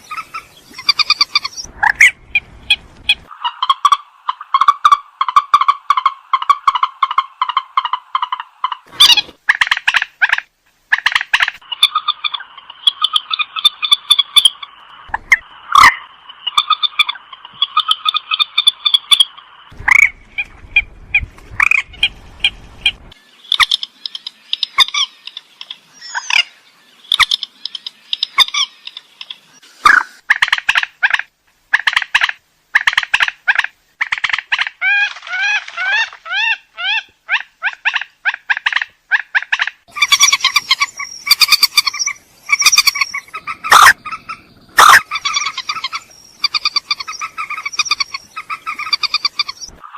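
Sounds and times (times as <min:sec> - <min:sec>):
swamphen harsh nasal calls: 0:00.0 - 0:20.2, 0:31.8 - 0:49.9.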